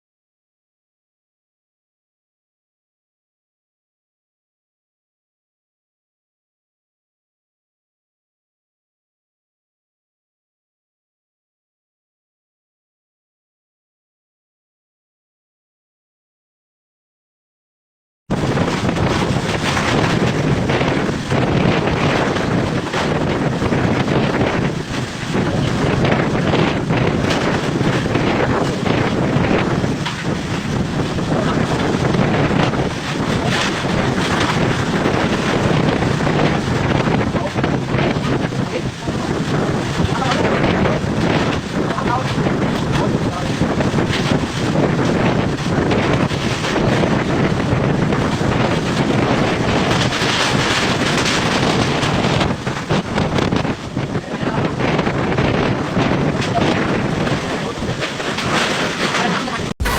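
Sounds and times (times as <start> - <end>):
wind buffeting microphone: 18.3 - 59.9.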